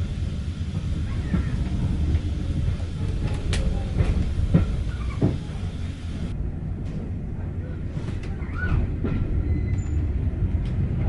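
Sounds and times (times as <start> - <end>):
wheels clacking over rails: 0.0 - 6.3
train rumbling: 0.0 - 11.0.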